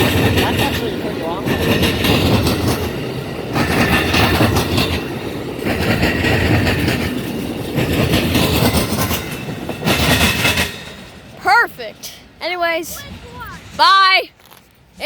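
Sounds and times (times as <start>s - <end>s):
wheels clattering over rail joints: 0.0s - 12.0s
passenger train passing: 0.0s - 15.0s.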